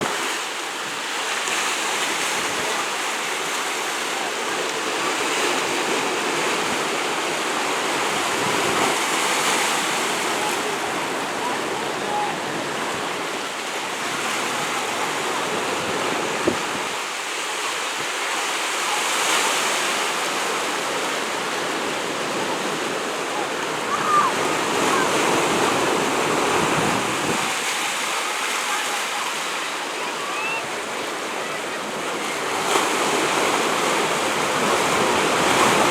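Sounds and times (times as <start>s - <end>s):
waves rushing: 0.0s - 35.9s
faint distant voices: 0.5s - 17.0s
wind on microphone: 14.5s - 17.0s, 25.6s - 27.6s.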